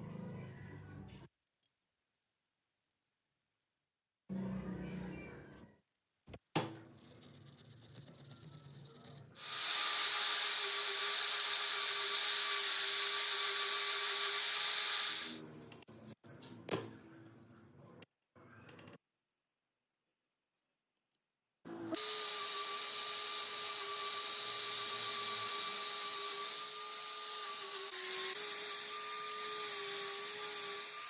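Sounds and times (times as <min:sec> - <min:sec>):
power tool abrading metal: 0:09.4 - 0:15.4.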